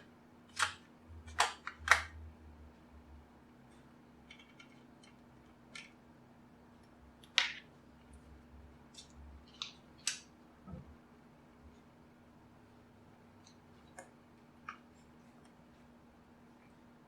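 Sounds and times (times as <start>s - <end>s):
clicks of small tools and plastic parts: 4.3s - 6.0s.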